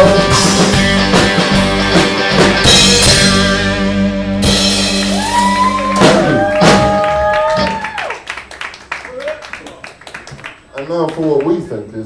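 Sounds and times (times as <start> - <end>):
rock band playing: 0.0 - 8.0.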